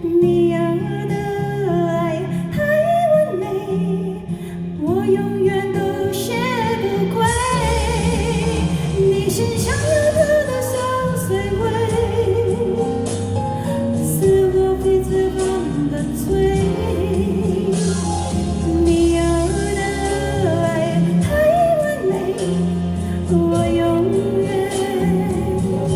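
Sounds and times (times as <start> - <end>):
woman singing: 0.0 - 25.9
band backing track: 6.2 - 25.9.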